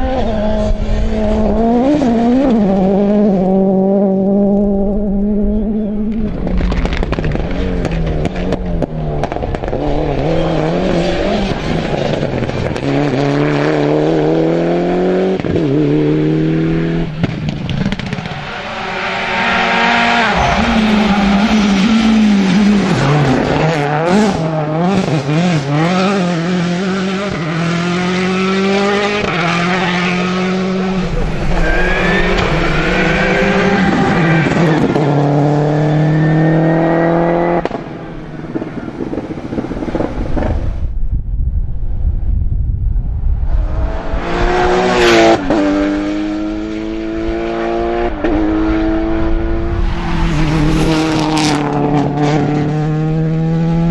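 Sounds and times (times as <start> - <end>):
rally car engines revving: 0.0 - 41.0, 43.4 - 53.9
tyre squeal: 29.7 - 35.2.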